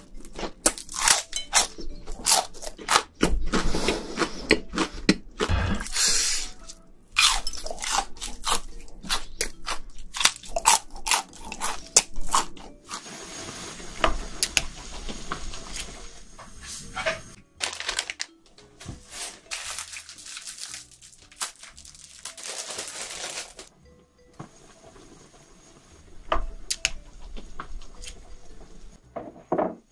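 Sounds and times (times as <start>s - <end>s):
crunching and chewing shrimp: 0.0s - 6.1s, 7.2s - 13.0s, 19.5s - 23.3s.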